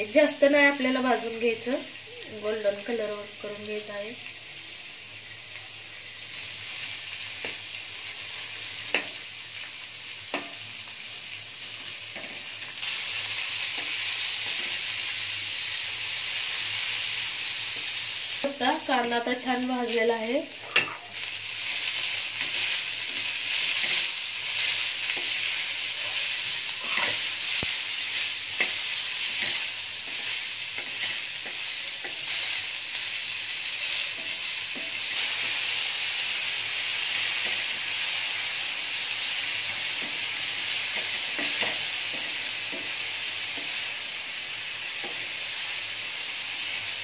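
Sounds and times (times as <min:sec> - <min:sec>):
vegetables sizzling in oil: 0:00.0 - 0:47.0
wooden spatula scraping pan: 0:26.0 - 0:27.3.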